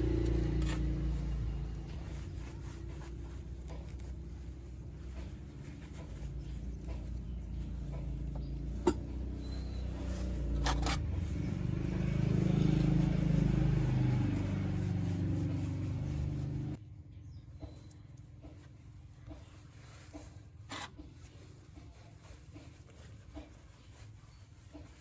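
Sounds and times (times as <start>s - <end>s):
motor droning: 0.0s - 16.8s.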